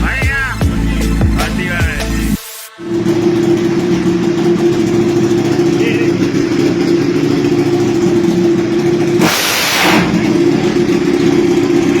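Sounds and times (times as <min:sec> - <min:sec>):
motorcycle engine running: 0:00.0 - 0:12.0
loud rush of hiss: 0:09.2 - 0:10.2.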